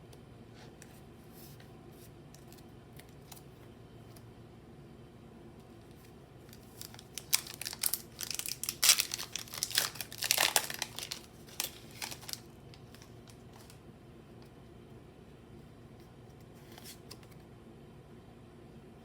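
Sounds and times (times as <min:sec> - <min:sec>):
foil wrapper crinkling and tearing: 0:06.5 - 0:13.8.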